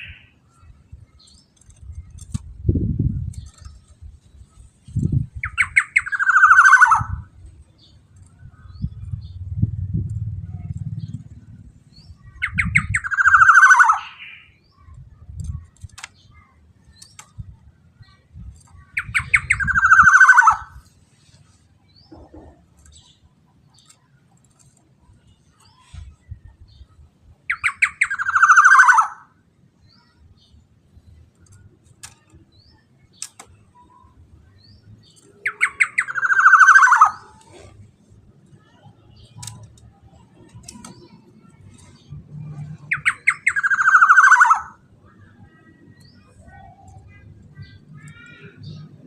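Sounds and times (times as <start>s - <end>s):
faint clicks and chirps: 0.5s - 2.6s, 3.2s - 6.3s, 7.4s - 9.2s, 14.7s - 19.8s, 20.8s - 26.2s, 30.5s - 34.2s, 37.3s - 43.8s
bird calling: 5.4s - 7.3s, 18.8s - 20.8s, 27.5s - 29.3s, 35.2s - 37.8s, 42.9s - 44.8s
low rumble: 8.7s - 12.7s.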